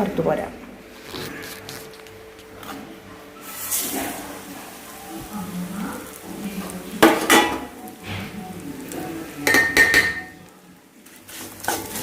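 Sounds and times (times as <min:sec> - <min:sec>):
metal spoon clinking on a pan: 0:09.4 - 0:10.4.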